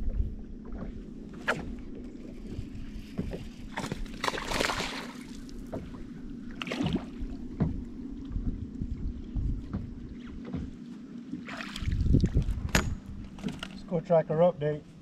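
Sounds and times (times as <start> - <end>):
water splashing against hull: 0.0 - 13.7
boat engine low hum: 0.0 - 15.0
water splashing rush: 4.2 - 5.5.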